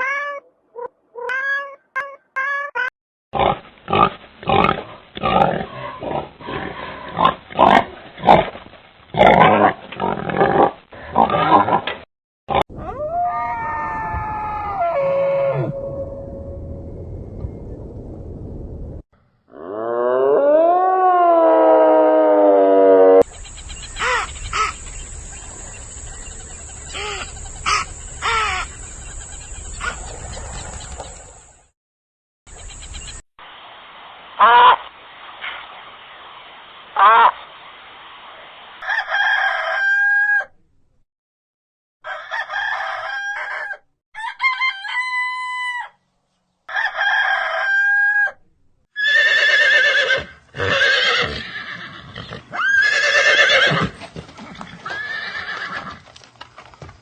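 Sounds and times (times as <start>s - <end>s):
pig grunting and squealing: 3.4s - 8.5s, 9.2s - 15.8s.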